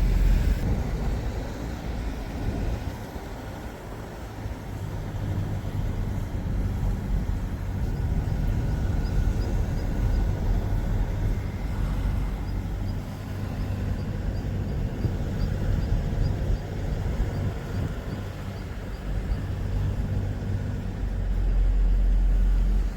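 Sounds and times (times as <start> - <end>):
car engine and tyre noise: 0.0 - 22.9.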